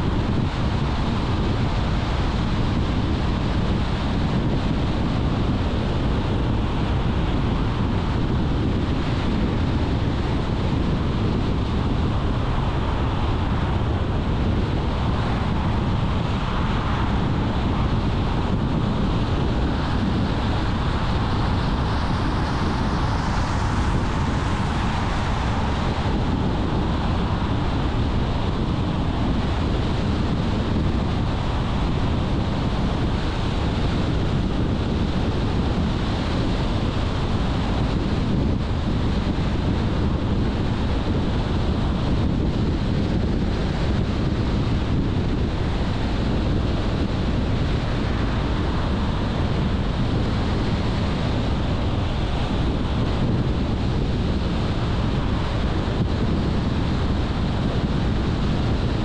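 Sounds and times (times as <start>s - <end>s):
wind noise: 0.0s - 59.0s
road hiss: 5.9s - 31.8s.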